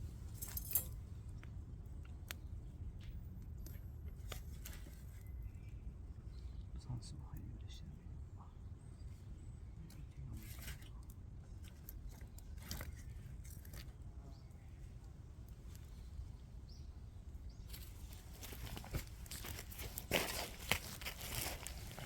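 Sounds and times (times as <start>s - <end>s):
wood fire crackling: 10.4s - 22.0s.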